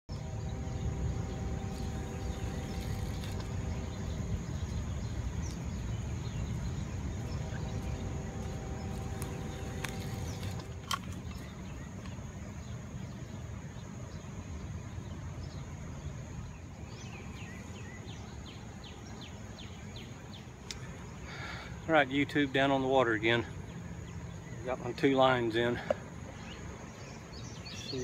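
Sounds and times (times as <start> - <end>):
wind rumble on microphone: 0.1 - 13.2
high insect trill: 0.1 - 14.2
faint hum: 0.1 - 28.0.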